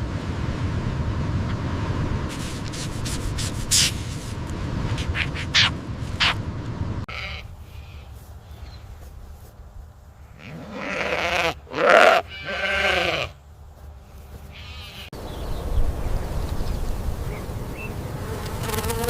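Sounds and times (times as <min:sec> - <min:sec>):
wind-like rumble: 0:00.0 - 0:10.3, 0:13.6 - 0:18.7
faint bleating: 0:07.1 - 0:08.1, 0:10.3 - 0:13.4, 0:14.5 - 0:15.1.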